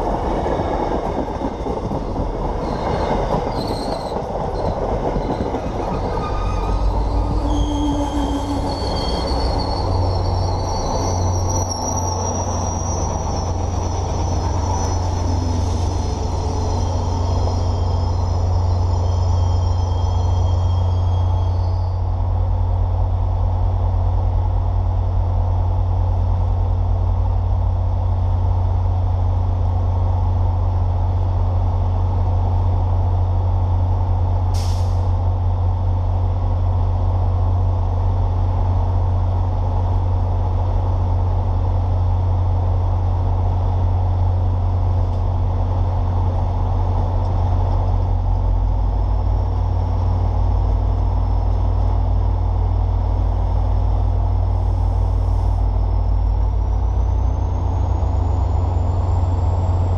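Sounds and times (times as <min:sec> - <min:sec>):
diesel locomotive drone: 0:00.0 - 0:59.9
train brake squeal: 0:02.6 - 0:22.1, 0:34.6 - 0:35.2
air brake hiss: 0:34.5 - 0:35.2.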